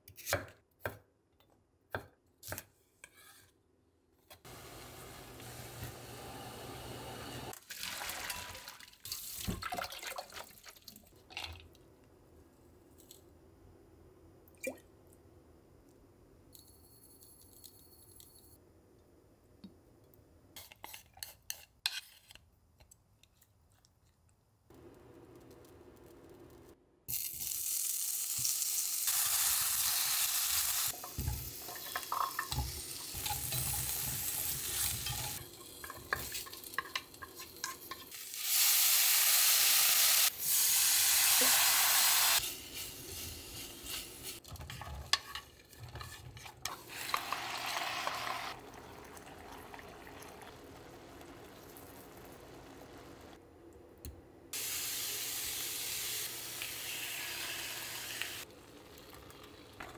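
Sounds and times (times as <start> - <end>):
vegetables sizzling in a pan: 4.5 - 7.6, 27.1 - 44.5, 46.7 - 48.6, 54.6 - 58.5
tofu sizzling: 4.5 - 9.4, 27.1 - 44.5, 46.7 - 53.4, 54.6 - 59.9
knocks and scrapes in pan: 44.4 - 46.8.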